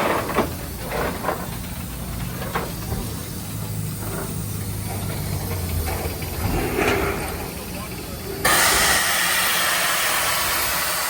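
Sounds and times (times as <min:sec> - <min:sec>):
steam hissing: 0:07.4 - 0:11.0.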